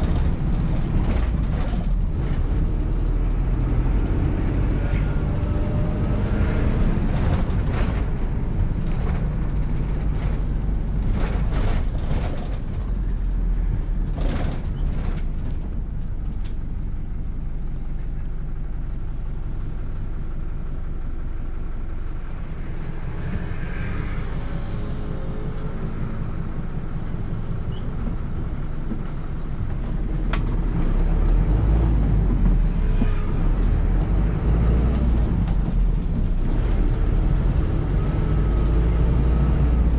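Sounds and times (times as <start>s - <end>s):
knocks and rattles from bus body: 0.0s - 18.3s, 26.3s - 39.9s
bus engine rumbling: 0.0s - 39.9s.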